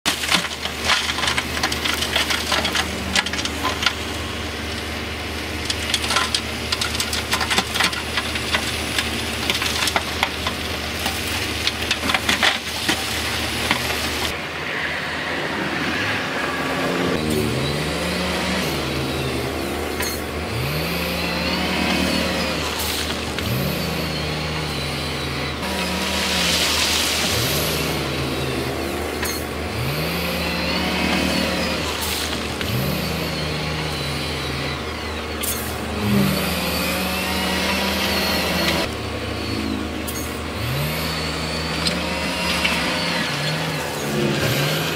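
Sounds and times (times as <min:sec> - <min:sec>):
diesel machinery engine revving: 0:00.0 - 0:44.9
rock crunching and clattering: 0:00.1 - 0:04.8, 0:05.6 - 0:14.3.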